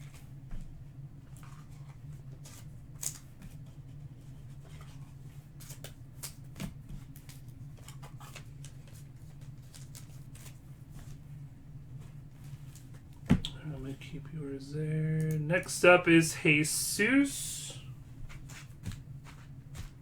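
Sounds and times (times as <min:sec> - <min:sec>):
steady low hum: 0:13.6 - 0:18.0.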